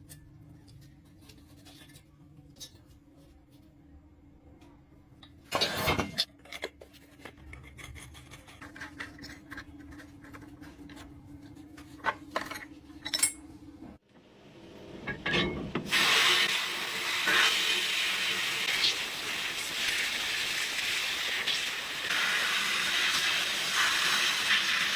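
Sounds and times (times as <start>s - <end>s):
metal tools clinking and scraping: 12.0s - 13.5s
hiss: 15.9s - 24.9s.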